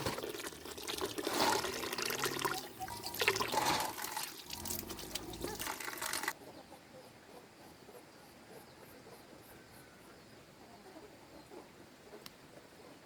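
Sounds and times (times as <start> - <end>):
running water splashing: 0.0 - 6.4.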